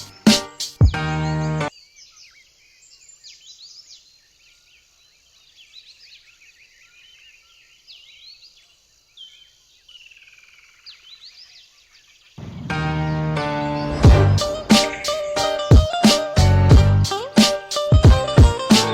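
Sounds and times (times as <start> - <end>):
small birds and insects chirping: 0.0 - 12.5.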